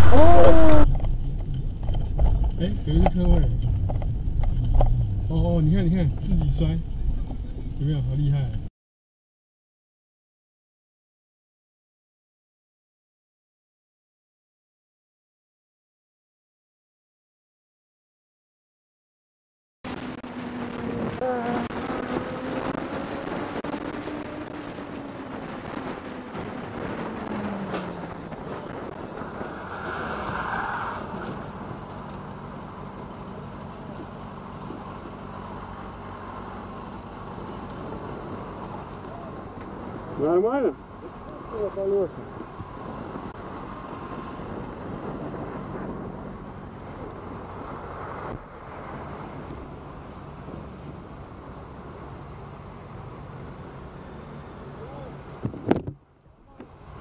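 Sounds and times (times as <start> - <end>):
road noise: 0.0 - 8.7, 19.8 - 57.0
vehicle engine running: 0.0 - 8.7, 31.4 - 48.7.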